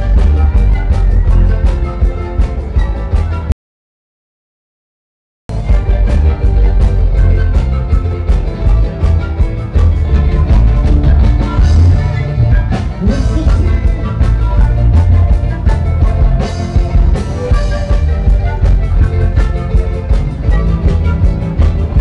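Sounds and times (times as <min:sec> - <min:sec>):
live band playing upbeat music: 0:00.0 - 0:03.5, 0:05.5 - 0:22.0.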